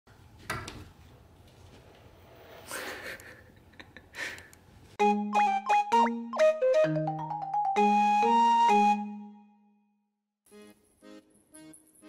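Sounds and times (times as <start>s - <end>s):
mallet percussion jingle: 5.3s - 8.9s.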